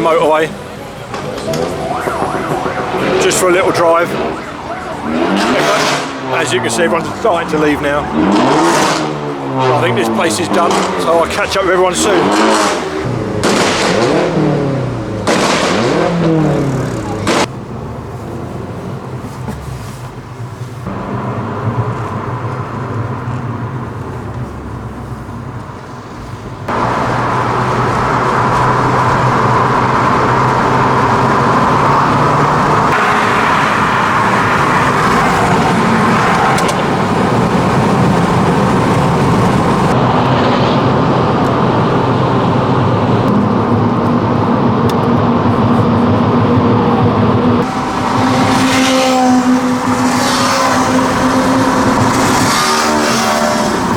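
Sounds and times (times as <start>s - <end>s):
car driving fast: 0.0s - 53.9s
car engine at low revs: 1.4s - 53.9s.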